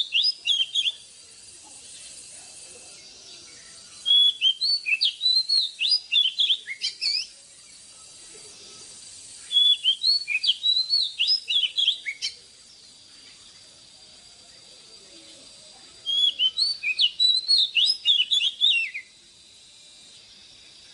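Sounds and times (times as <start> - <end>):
bird singing whistled notes: 0.0 - 1.2, 3.0 - 13.6, 16.0 - 19.2.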